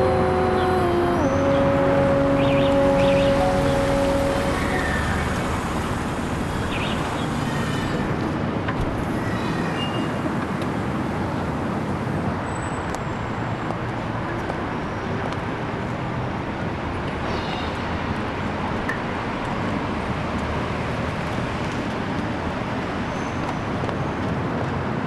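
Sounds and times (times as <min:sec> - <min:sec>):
low rumbling background noise: 0:00.0 - 0:23.1.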